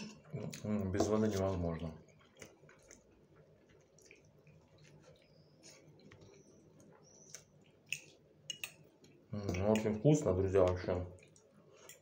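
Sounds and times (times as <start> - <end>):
faint chewing: 0.0 - 12.0
wet mouth clicks: 7.1 - 8.8.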